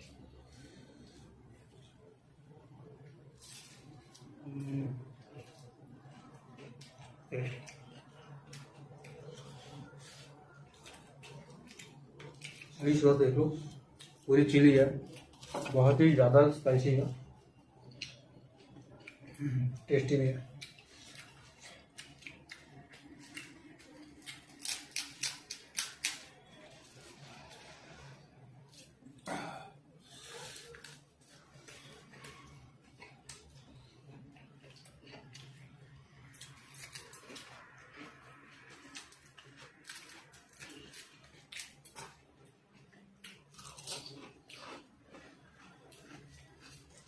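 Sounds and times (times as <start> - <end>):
close chewing: 3.4 - 14.3, 20.5 - 29.3, 30.0 - 47.0.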